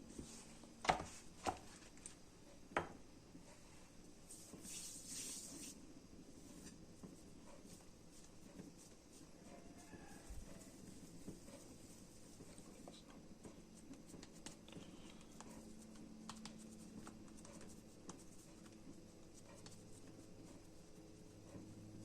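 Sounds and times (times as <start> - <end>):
low steady hum: 0.0 - 22.0
faint light ticks and scratches: 6.4 - 22.0.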